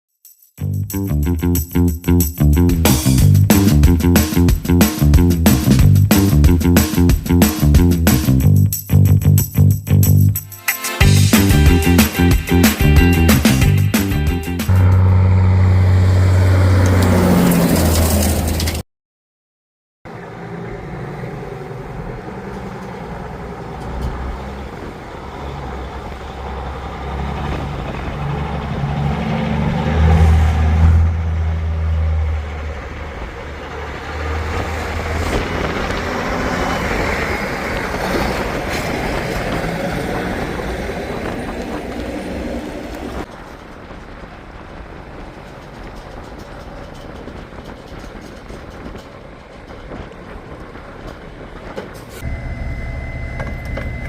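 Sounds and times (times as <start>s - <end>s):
heavy truck engine running: 11.0s - 17.1s, 20.1s - 44.0s.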